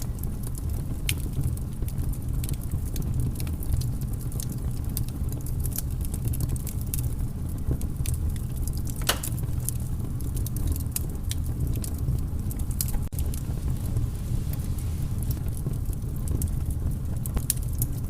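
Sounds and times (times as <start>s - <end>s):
wood fire crackling: 0.0s - 18.0s
low rumble: 7.6s - 18.0s.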